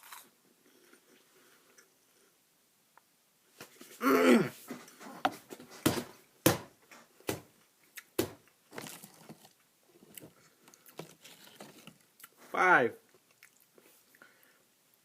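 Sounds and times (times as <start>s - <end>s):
crunching crispy snack: 8.7s - 9.6s.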